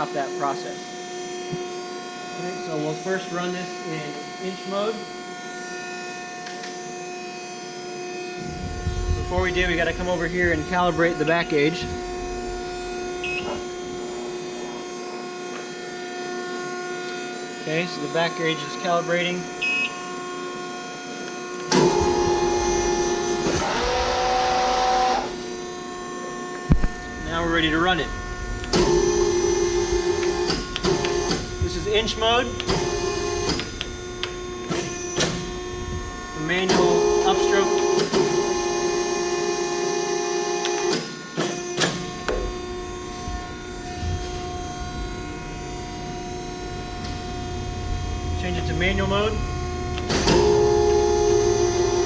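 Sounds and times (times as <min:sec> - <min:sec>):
hydraulic system humming: 0:00.8 - 0:52.0
drive motors whining: 0:08.0 - 0:20.6, 0:21.2 - 0:52.0.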